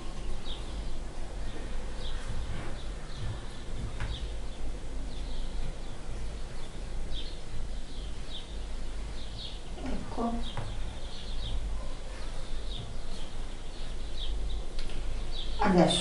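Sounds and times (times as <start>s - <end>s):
birds chirping: 0.0s - 16.0s
steady low hum: 0.0s - 16.0s.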